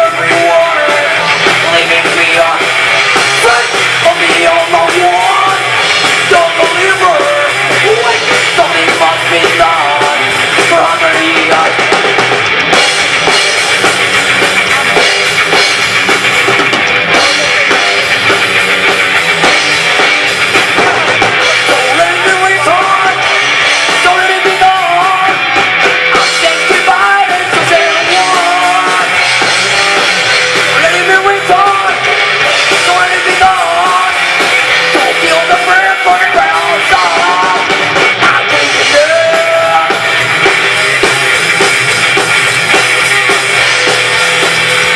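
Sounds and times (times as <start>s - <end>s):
drum kit: 0.0s - 44.9s
live rock band playing: 0.0s - 44.9s.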